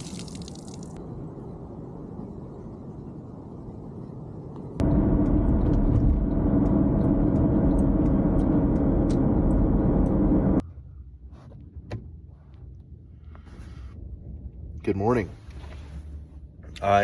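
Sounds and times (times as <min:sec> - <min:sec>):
car road rumble: 0:00.9 - 0:10.7.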